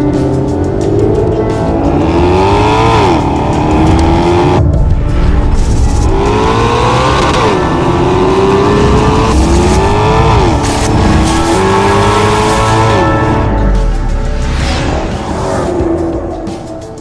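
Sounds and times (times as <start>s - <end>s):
car engine accelerating hard: 0.7s - 4.6s, 5.8s - 13.5s.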